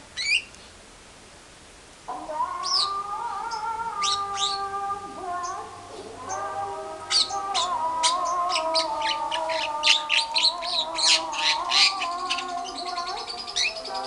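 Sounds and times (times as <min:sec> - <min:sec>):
myna chattering: 0:06.2 - 0:14.0.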